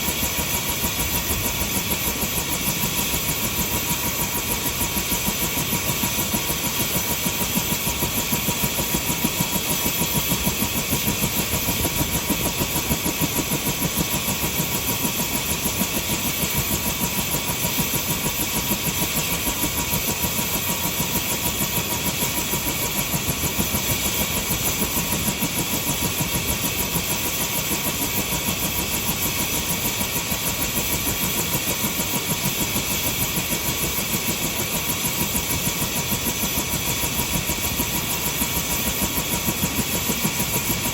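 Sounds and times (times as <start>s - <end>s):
helicopter running: 0.0s - 40.9s.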